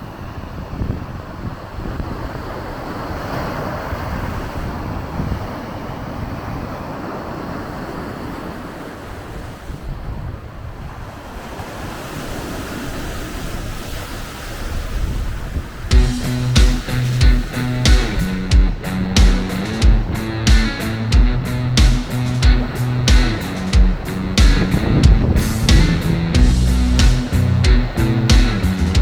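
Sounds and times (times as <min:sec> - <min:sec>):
small waves breaking on beach: 0:00.0 - 0:15.9
wind buffeting microphone: 0:00.0 - 0:29.0.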